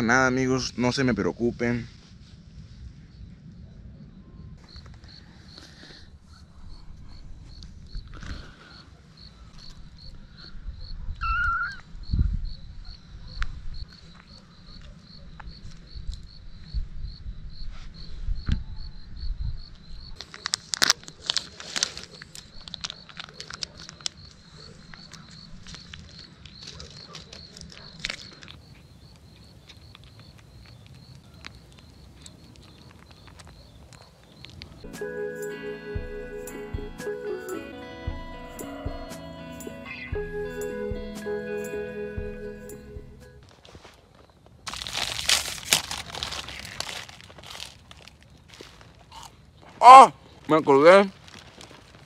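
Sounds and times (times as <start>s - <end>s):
cricket chirping: 2.6s - 43.5s
crackling rustles: 20.2s - 34.9s, 43.4s - 52.0s.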